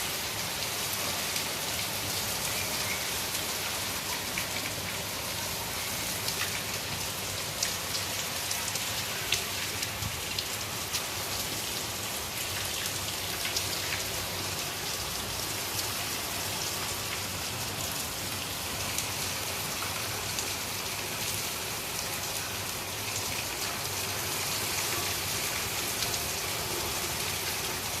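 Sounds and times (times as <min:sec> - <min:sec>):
heavy rain falling: 0:00.0 - 0:28.0
raindrops ticking on surfaces: 0:00.1 - 0:28.0.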